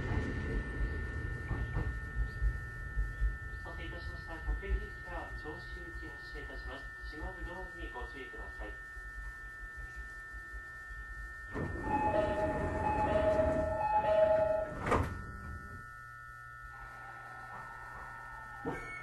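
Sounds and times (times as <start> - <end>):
two-tone door chime: 11.5 - 15.6
doors shutting thud: 14.4 - 15.2.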